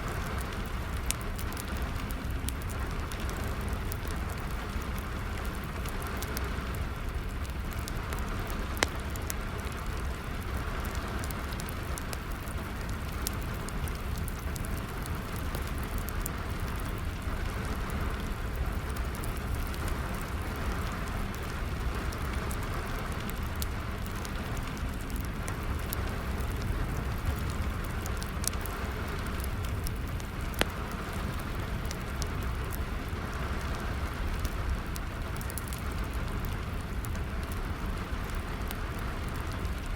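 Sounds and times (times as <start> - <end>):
fire crackling and popping: 0.0 - 39.9
steady rain: 0.0 - 39.9.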